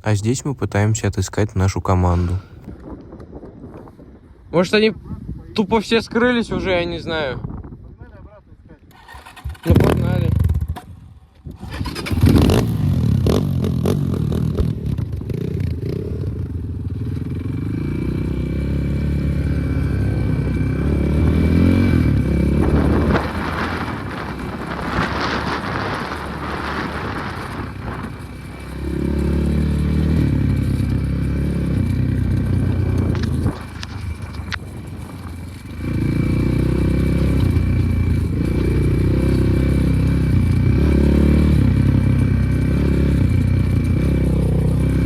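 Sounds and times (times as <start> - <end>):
clatter from motorcycle: 8.9 - 18.2, 22.1 - 45.0
motorcycle engine revving: 8.9 - 45.0.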